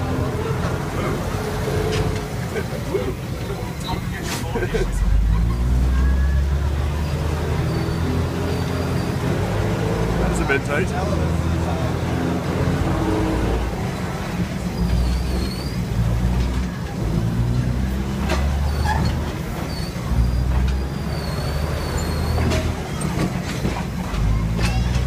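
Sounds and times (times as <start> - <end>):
train engine and wheel rumble: 0.0 - 25.0
faint high squeals: 7.6 - 9.2, 18.6 - 23.0.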